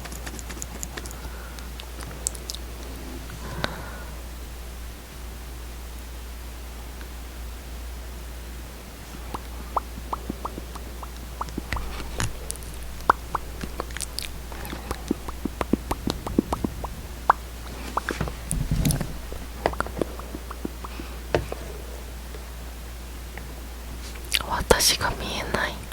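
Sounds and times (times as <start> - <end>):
lip smacks and mouth clicks: 0.0 - 2.6, 9.3 - 21.0, 24.2 - 24.5.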